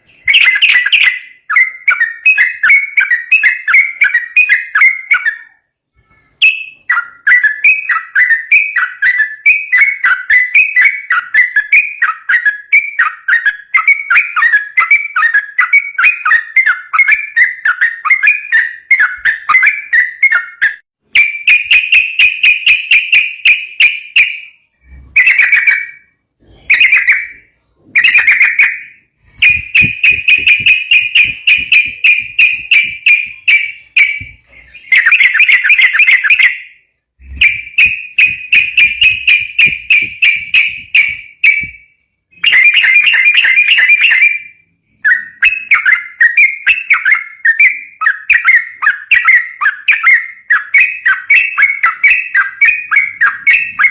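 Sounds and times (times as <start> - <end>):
bird singing rapid chattering song: 0.0 - 5.6, 26.6 - 41.8, 42.4 - 44.5, 45.1 - 53.9.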